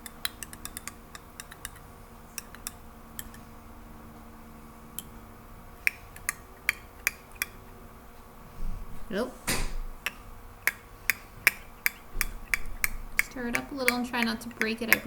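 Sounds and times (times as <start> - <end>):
utensil clicking against glass jar: 0.0 - 3.4, 5.9 - 7.6, 10.0 - 15.0.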